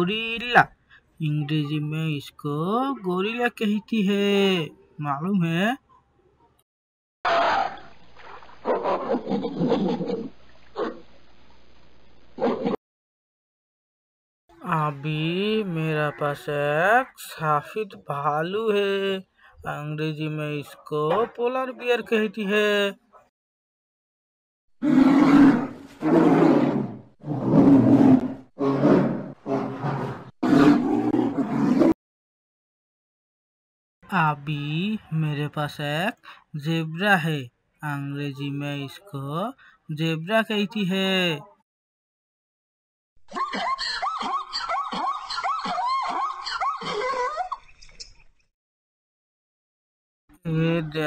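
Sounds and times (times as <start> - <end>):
polar bear growling: 24.8 - 32.0.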